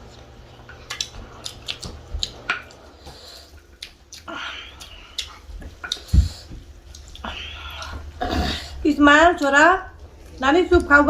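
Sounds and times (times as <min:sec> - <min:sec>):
wet chewing and lip smacks: 0:00.8 - 0:02.8, 0:03.6 - 0:08.0.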